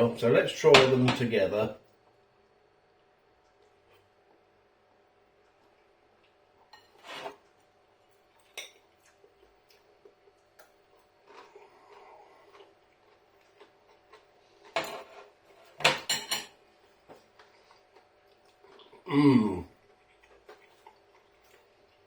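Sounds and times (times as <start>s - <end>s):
cutlery clinking on a plate: 14.7s - 16.6s.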